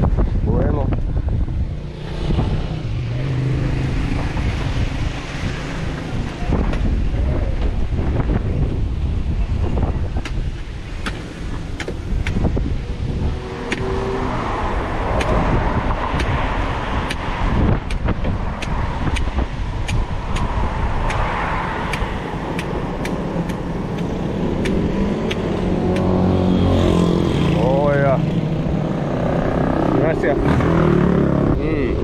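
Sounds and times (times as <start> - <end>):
road traffic: 0.0 - 32.0
wind on microphone: 0.0 - 32.0
machete chopping coconut: 11.0 - 12.4, 13.6 - 13.9, 15.1 - 15.5, 16.1 - 16.4, 17.0 - 21.3, 21.9 - 26.2.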